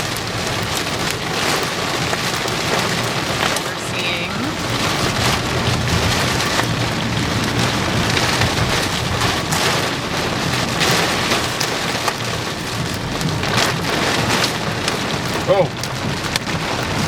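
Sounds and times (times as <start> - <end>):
low road hum: 0.0 - 17.0
rain and hail on vehicle roof: 0.0 - 17.0.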